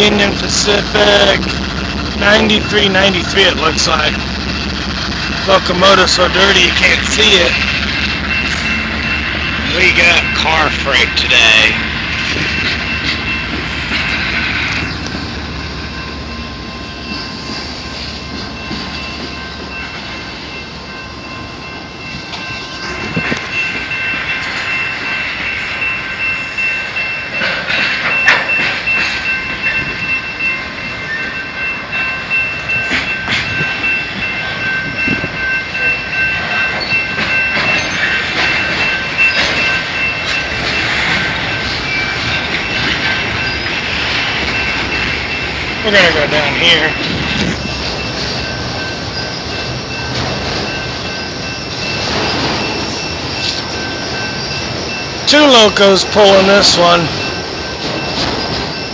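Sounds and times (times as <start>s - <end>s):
low locomotive rumble: 0.0s - 58.9s
train wheels clicking over rail joints: 22.1s - 58.9s.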